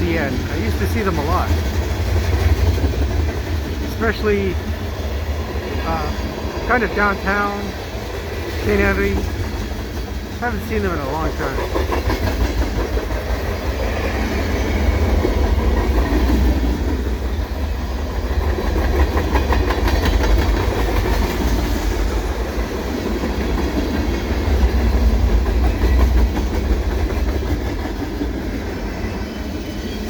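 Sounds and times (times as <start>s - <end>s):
freight train low rumble: 0.0s - 30.0s
wheels clicking over rail joints: 11.3s - 28.8s.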